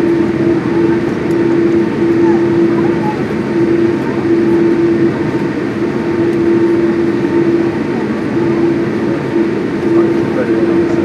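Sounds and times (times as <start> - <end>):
airplane cabin engine rumble: 0.0 - 11.0
engine hum: 0.0 - 11.0.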